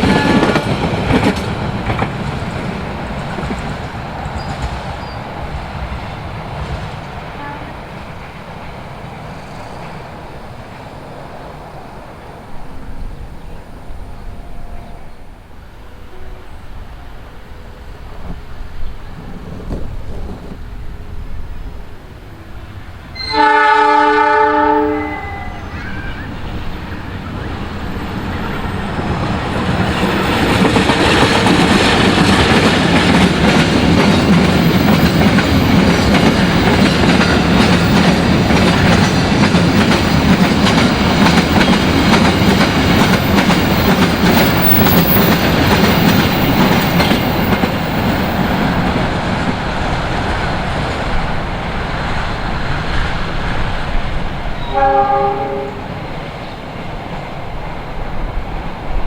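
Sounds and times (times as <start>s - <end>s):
train horn blast: 0.0s - 0.6s, 7.3s - 7.9s, 22.4s - 26.0s, 54.6s - 55.9s
train passing at speed: 0.0s - 59.0s.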